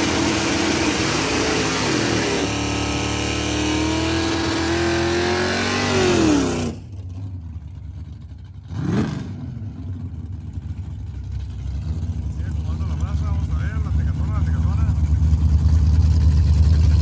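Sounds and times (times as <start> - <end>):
racing car engine revving: 0.0 - 7.3, 8.6 - 10.4.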